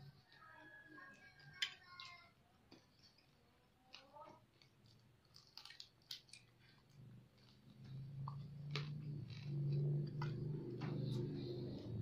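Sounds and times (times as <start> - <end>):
crunching crispy pork skin: 3.9 - 7.9.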